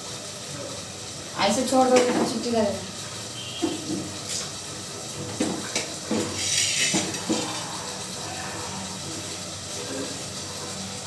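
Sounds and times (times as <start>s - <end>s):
dishes and utensils clinking: 5.2s - 7.6s.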